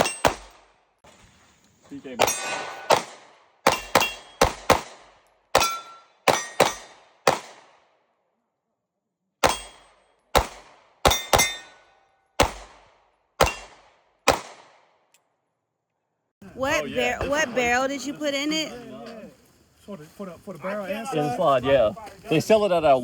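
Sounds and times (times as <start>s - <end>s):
pistol shots: 0.0s - 0.8s, 2.2s - 7.9s, 9.4s - 15.0s
metallic ring: 2.2s - 2.9s, 5.6s - 6.6s, 11.1s - 12.0s.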